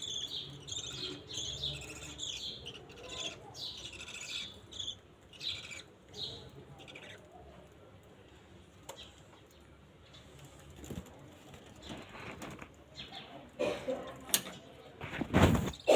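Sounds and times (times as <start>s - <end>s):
budgerigars chirping: 0.0s - 7.2s.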